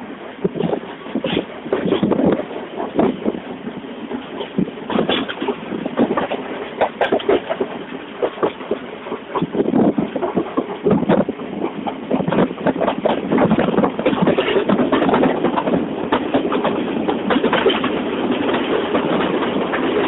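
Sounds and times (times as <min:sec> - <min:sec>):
train rumbling and clattering: 0:00.0 - 0:20.0.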